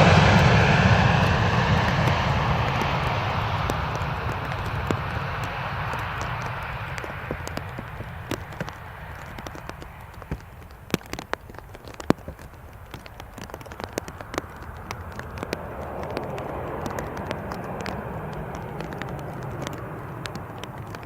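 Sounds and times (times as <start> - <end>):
broad rushing noise: 0.0 - 21.0
raindrops tapping: 0.0 - 21.0
steady low rumble: 0.0 - 21.0.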